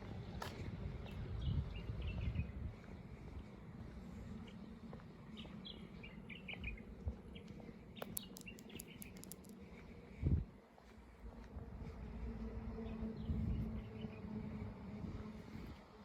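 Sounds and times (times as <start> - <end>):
small birds chirping: 5.4 - 9.8
sharp clicks: 8.0 - 9.6.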